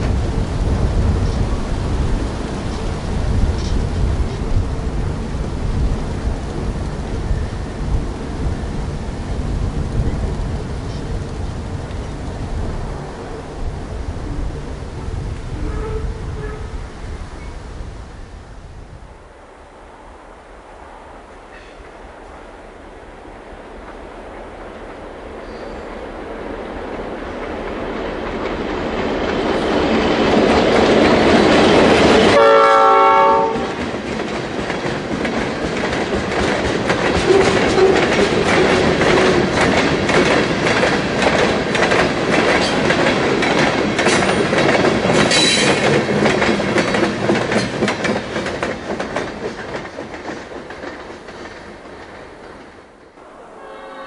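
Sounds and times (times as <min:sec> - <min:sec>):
train horn blast: 0:15.5 - 0:16.8, 0:32.3 - 0:33.8, 0:37.3 - 0:38.0, 0:53.2 - 0:54.0
train cars clacking over rails: 0:23.8 - 0:53.0.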